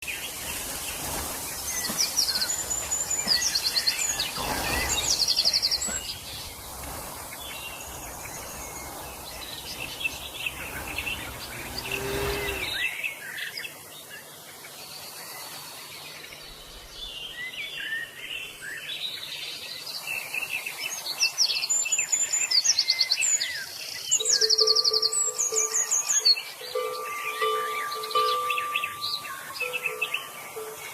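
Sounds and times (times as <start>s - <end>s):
small birds chirping: 0.0s - 30.9s
low rumbling noise: 0.2s - 12.8s.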